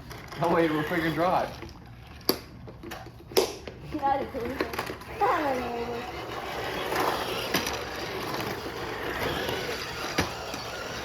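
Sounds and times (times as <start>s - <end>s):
toy cars motors and wheels rushing: 0.0s - 3.1s, 4.0s - 11.0s
toy cars bumping knocks: 6.5s - 11.0s.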